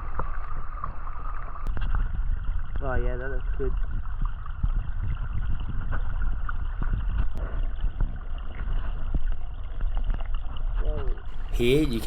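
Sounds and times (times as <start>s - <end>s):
stream gurgling and splashing: 0.0s - 12.0s.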